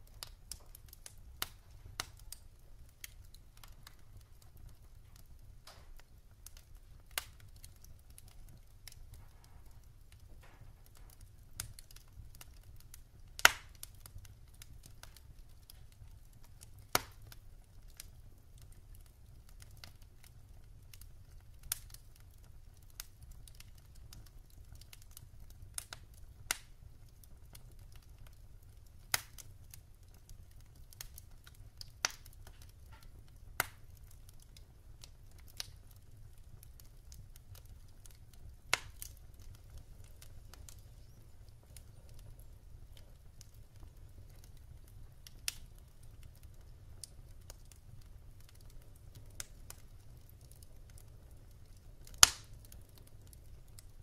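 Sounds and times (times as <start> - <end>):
wood fire crackling and popping: 0.0 - 54.0.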